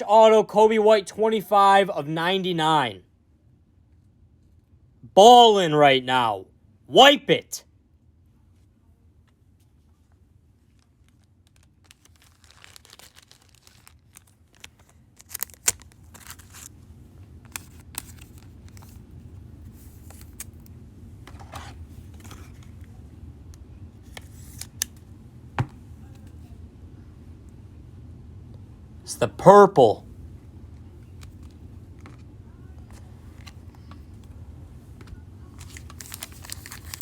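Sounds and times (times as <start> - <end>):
low steady hum: 0.0 - 37.0
cards and plastic packaging rustling: 10.6 - 20.7, 21.3 - 22.9, 24.0 - 25.0, 35.0 - 37.0.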